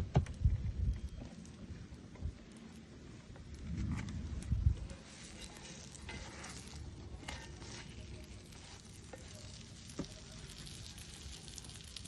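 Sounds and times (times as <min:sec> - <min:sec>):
flatbread sizzling while frying: 0:05.0 - 0:12.0.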